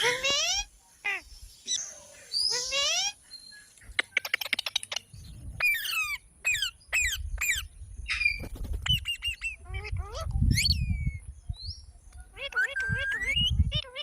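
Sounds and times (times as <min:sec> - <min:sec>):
parrot chirping and squawking: 0:02.4 - 0:03.2, 0:03.9 - 0:11.2, 0:12.3 - 0:14.0.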